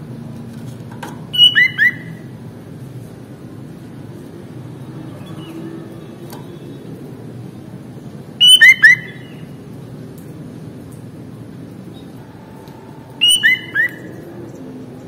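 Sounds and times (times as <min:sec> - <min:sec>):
bird giving sharp notes: 0:01.3 - 0:02.2, 0:08.4 - 0:09.4, 0:13.2 - 0:14.2.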